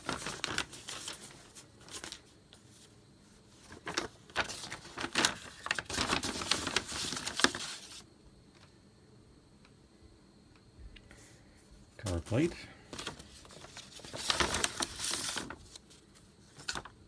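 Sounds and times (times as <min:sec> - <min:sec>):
paper rustling and crackling: 0:00.0 - 0:08.7, 0:12.0 - 0:17.0.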